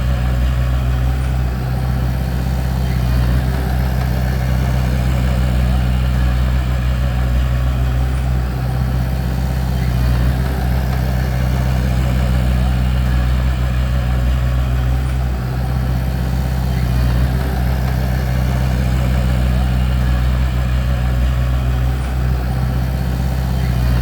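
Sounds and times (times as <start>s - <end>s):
bulldozer diesel engine running: 0.0s - 24.0s.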